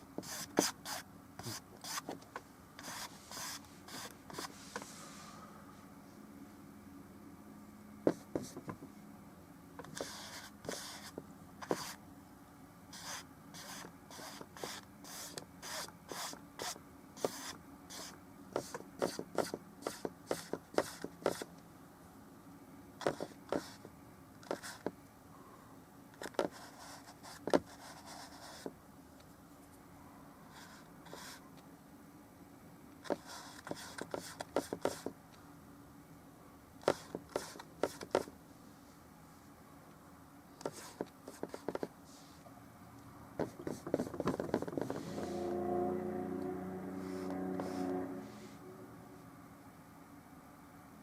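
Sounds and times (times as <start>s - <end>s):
paintbrush scraping and tapping canvas: 8.1s - 8.9s, 13.0s - 21.5s, 23.0s - 23.8s, 36.8s - 38.3s, 40.6s - 41.9s, 43.4s - 45.3s, 47.1s - 47.9s.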